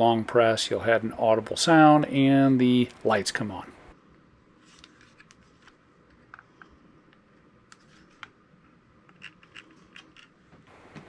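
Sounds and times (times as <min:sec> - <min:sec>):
plastic clicks and handling noise: 0:04.7 - 0:08.4.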